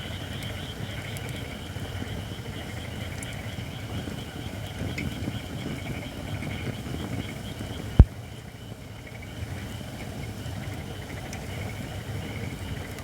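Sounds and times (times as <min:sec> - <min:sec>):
firewood burning with crackle: 0:00.0 - 0:13.0.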